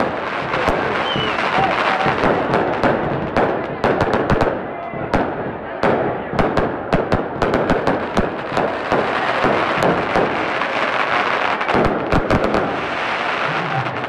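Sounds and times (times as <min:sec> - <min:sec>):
fireworks cracking and banging: 0:00.0 - 0:14.0.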